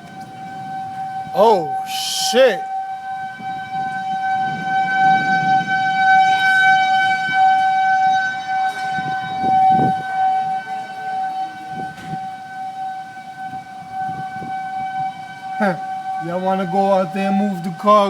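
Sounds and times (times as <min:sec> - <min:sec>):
outdoor warning siren steady tone: 0:00.0 - 0:18.0.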